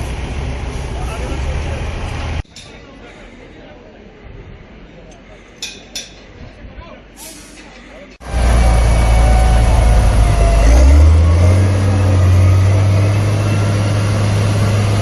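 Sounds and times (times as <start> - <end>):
diesel engine running: 0.0 - 2.4, 8.2 - 15.0.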